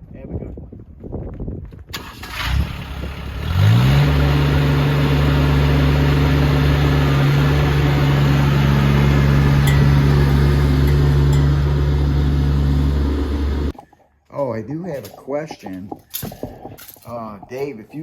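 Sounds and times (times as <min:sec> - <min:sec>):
tractor diesel engine starting: 0:01.9 - 0:13.8
tractor diesel engine idling: 0:02.0 - 0:13.8.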